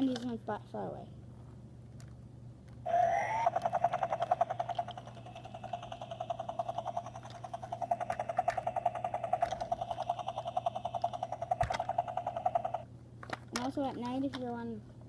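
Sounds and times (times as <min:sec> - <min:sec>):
toy helicopter rotor sound effect: 0:02.9 - 0:12.9.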